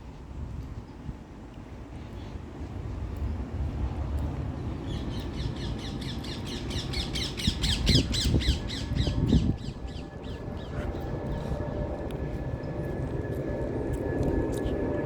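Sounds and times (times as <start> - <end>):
low rumble: 8.0 - 15.0.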